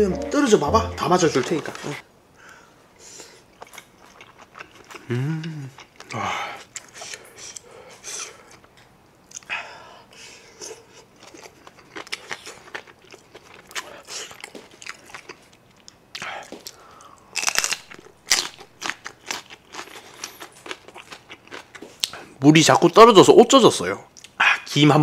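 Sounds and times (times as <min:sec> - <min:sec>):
man chewing with wet mouth clicks: 0:03.5 - 0:09.5, 0:10.6 - 0:22.2
crisp crunches of chili pepper: 0:16.7 - 0:21.8.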